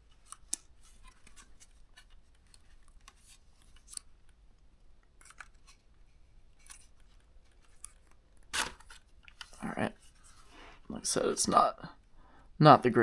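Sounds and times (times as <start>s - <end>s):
plastic clicks and scrapes: 0.1s - 4.4s, 5.1s - 10.4s.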